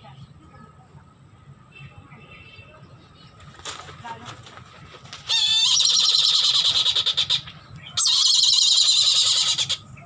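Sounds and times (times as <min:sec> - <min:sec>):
bird of prey chattering calls: 0:05.2 - 0:10.0.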